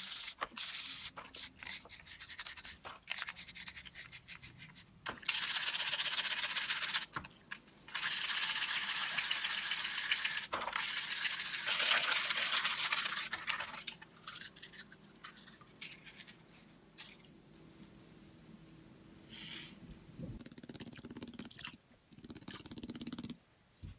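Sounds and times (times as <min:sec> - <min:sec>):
brush scrubbing: 0:00.0 - 0:04.9.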